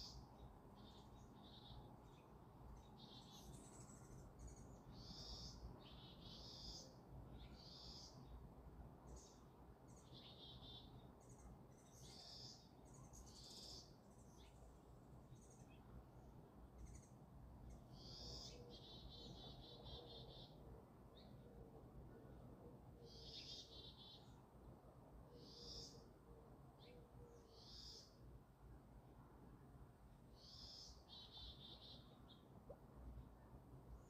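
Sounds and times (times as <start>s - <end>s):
songbirds chirping: 0.0s - 34.0s.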